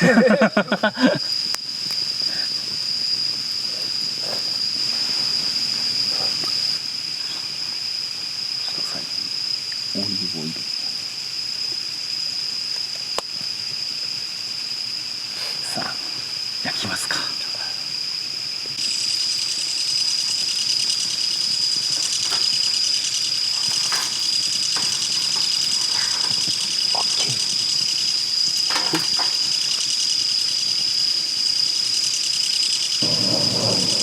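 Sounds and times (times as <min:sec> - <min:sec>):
insects buzzing: 0:00.0 - 0:34.0
faint clicks and knocks: 0:21.9 - 0:29.9.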